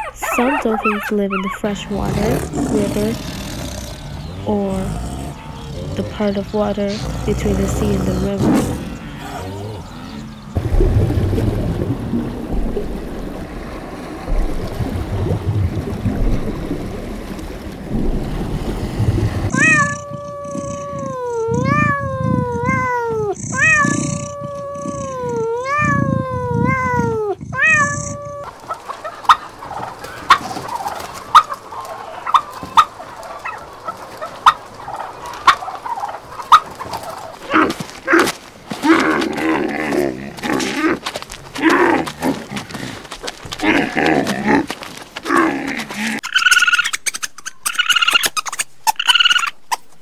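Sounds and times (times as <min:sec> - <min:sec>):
low rumbling noise: 0:01.6 - 0:22.8
kitten mewing: 0:19.5 - 0:28.5
turkey clucking: 0:28.5 - 0:37.4, 0:46.2 - 0:49.9.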